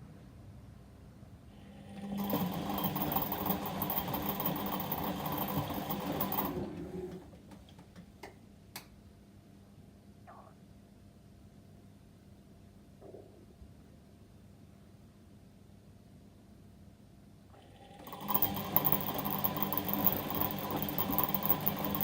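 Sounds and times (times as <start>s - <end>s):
washing machine motor whirring: 1.6s - 7.4s, 17.6s - 22.0s.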